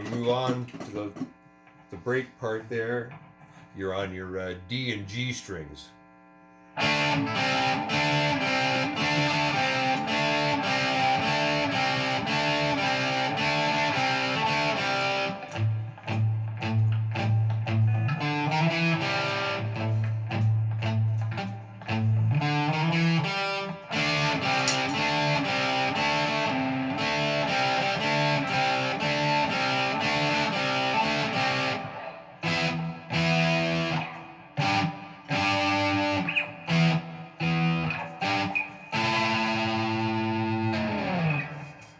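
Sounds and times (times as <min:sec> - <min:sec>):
guitar riff over drone: 0:06.7 - 0:41.9.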